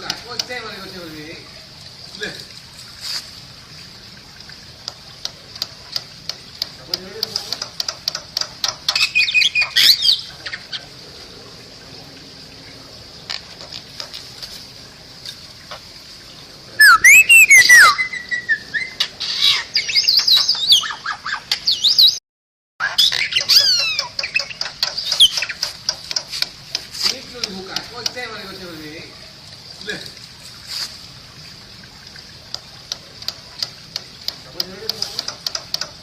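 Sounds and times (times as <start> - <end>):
bird clicks squawks and whistles: 16.8 - 22.2, 22.8 - 25.7.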